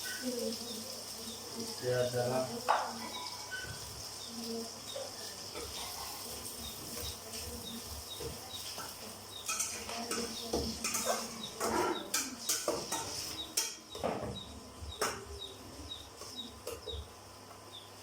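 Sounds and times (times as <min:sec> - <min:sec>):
onions frying: 0:00.0 - 0:15.3, 0:15.9 - 0:18.0
spoon scraping a pot: 0:08.1 - 0:14.0.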